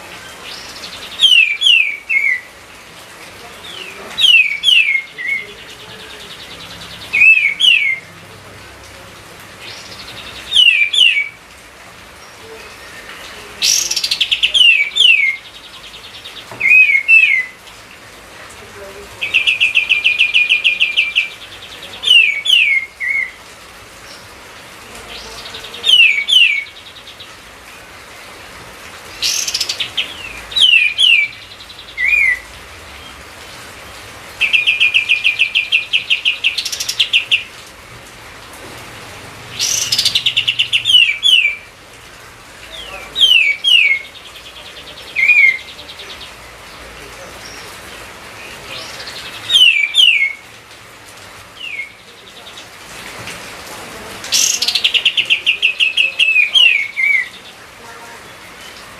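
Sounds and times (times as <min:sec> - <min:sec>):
background hiss: 0:00.0 - 0:56.2
songbird singing trills and whistles: 0:00.2 - 0:02.5, 0:03.6 - 0:08.1, 0:09.6 - 0:11.4, 0:12.2 - 0:17.6, 0:19.2 - 0:23.4, 0:25.1 - 0:27.4, 0:29.1 - 0:33.2, 0:34.4 - 0:37.6, 0:39.5 - 0:41.7, 0:42.8 - 0:46.4, 0:48.4 - 0:50.4, 0:51.6 - 0:52.7, 0:54.3 - 0:57.6.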